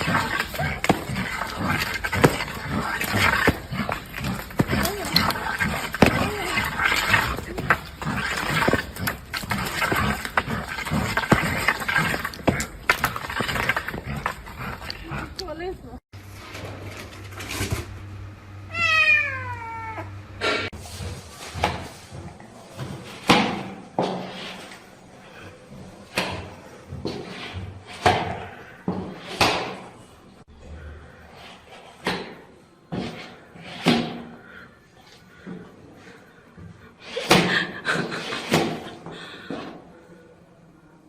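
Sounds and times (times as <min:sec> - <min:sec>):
cat meowing: 0:18.7 - 0:20.2.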